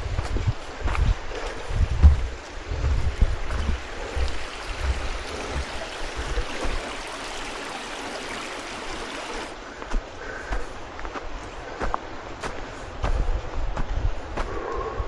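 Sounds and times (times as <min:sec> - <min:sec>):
wind buffeting microphone: 0:00.0 - 0:07.5, 0:09.4 - 0:15.0
water rushing: 0:02.4 - 0:09.6.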